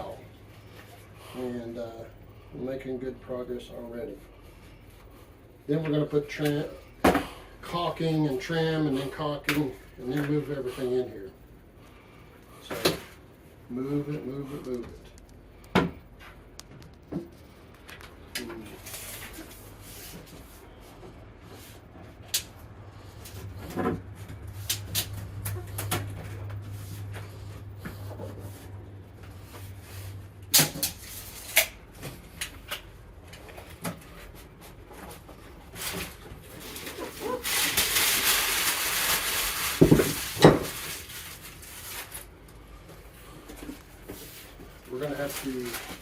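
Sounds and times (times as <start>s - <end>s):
flooring rustling and scraping: 33.2s - 46.0s.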